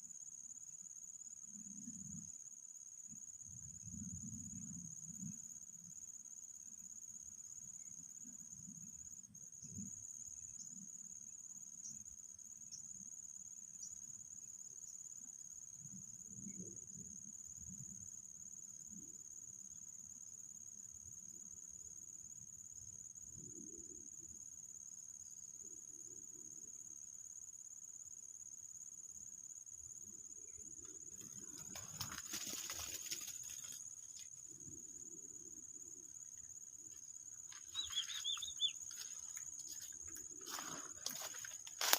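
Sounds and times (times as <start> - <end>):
high-pitched insect drone: 9.4 - 41.9.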